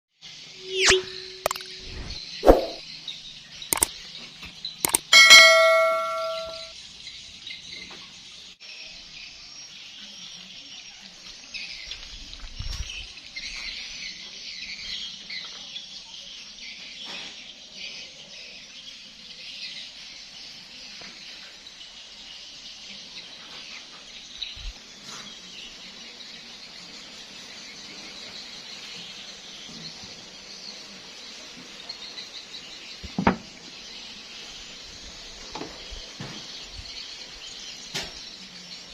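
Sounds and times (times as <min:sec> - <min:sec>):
birds chirping: 0:00.6 - 0:04.0, 0:04.9 - 0:06.7
ringing metallic strike: 0:04.9 - 0:06.7.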